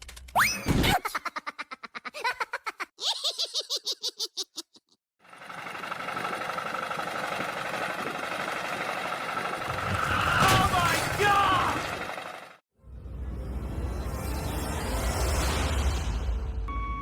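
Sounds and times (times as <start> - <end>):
mechanical running noise with whine: 5.3 - 12.6.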